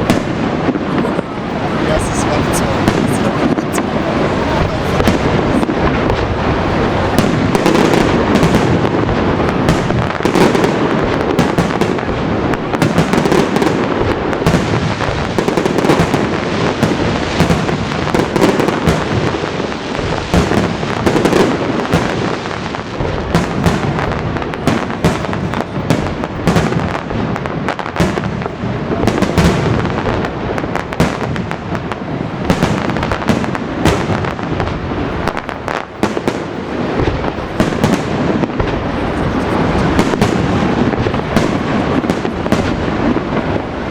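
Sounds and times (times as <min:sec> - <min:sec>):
continuous rumble: 0:00.0 - 0:07.6
fireworks bangs: 0:00.0 - 0:43.9.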